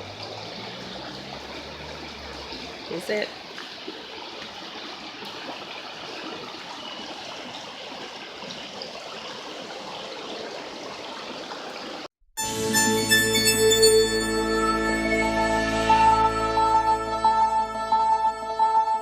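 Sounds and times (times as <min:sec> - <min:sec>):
stream flowing over rocks: 0:00.0 - 0:12.1.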